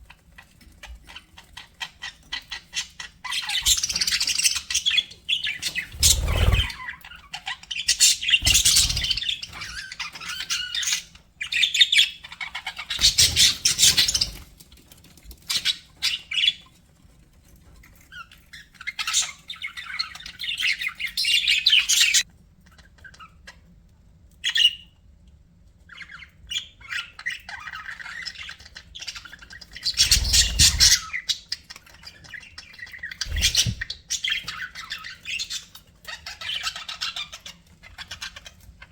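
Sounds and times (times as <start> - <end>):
budgerigars chirping and warbling: 0.3 - 14.4, 25.9 - 38.8.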